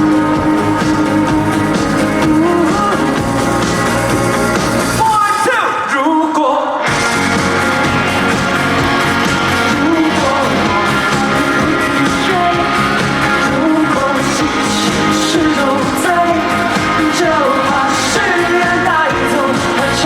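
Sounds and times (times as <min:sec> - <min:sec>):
live pop-rock band music: 0:00.0 - 0:20.0.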